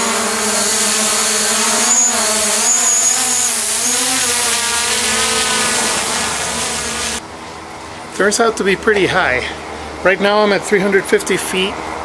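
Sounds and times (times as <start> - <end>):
drone propellers buzzing: 0.0 - 7.2.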